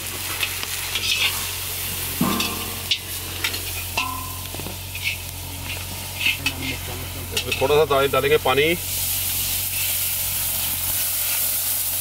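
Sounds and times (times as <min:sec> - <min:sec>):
paste sizzling in hot oil: 0:00.0 - 0:12.0
metal ladle scraping pan: 0:00.4 - 0:01.6, 0:02.2 - 0:07.7.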